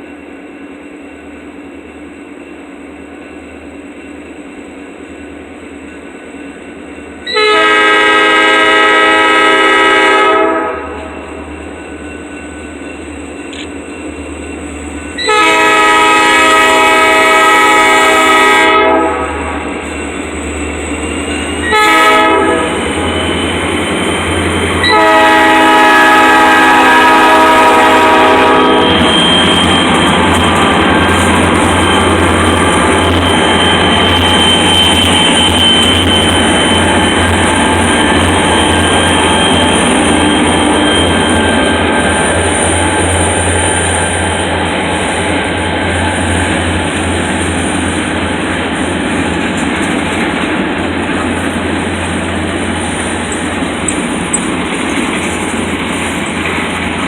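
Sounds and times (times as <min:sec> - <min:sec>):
train rumbling past: 0:00.0 - 0:57.0
locomotive air horn blasts: 0:07.2 - 0:11.4, 0:15.2 - 0:19.9, 0:21.6 - 0:23.4, 0:24.8 - 0:33.2
wheels clattering on rail: 0:19.7 - 0:57.0.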